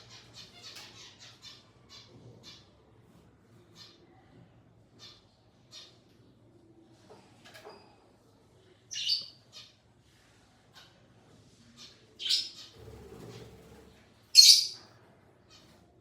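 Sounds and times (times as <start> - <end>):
faint parrot chirps: 14.3 - 14.9
parrot squawking: 14.4 - 14.8.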